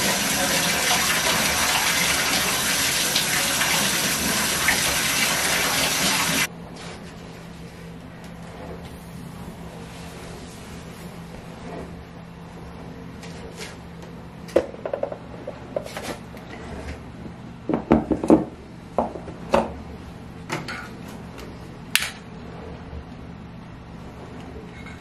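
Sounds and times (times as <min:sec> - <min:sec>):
steady low hum: 0:06.4 - 0:25.0.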